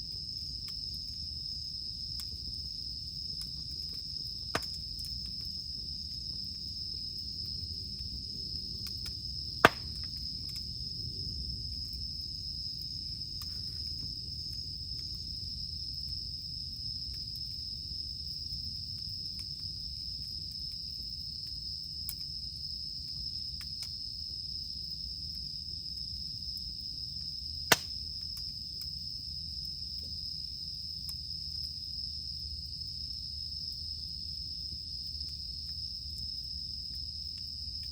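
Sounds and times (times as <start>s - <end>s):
campfire rumble: 0.0s - 37.9s
cicadas droning: 0.0s - 37.9s
firewood popping: 9.4s - 10.7s, 27.7s - 28.4s.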